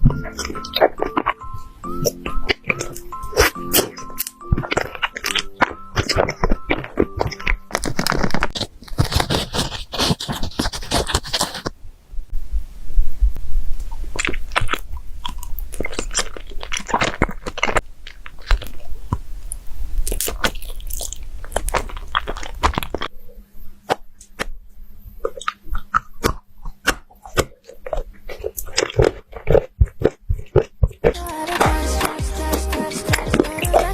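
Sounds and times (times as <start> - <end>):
crunching and chewing: 0.0 - 11.7, 13.8 - 23.2, 23.8 - 33.9.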